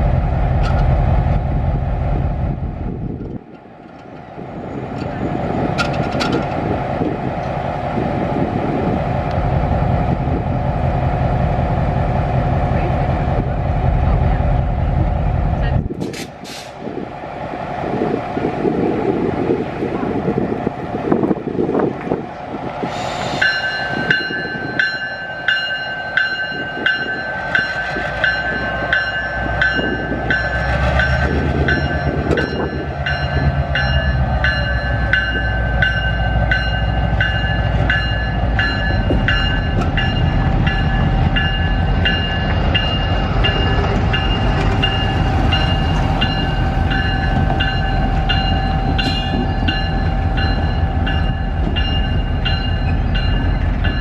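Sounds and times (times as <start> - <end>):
low rumble of passing train: 0.0 - 54.0
railroad crossing bell ringing: 23.2 - 54.0.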